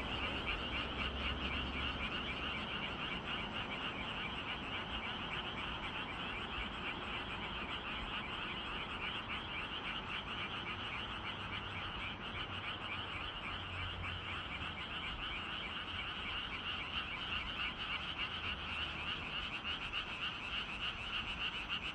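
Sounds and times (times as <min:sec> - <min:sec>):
chorus of frogs croaking: 0:00.0 - 0:21.9.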